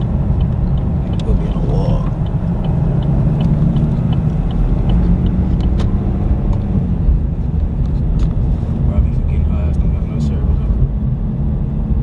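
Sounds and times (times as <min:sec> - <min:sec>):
light regular ticking: 0:00.0 - 0:06.9
car road and engine noise: 0:00.0 - 0:12.0.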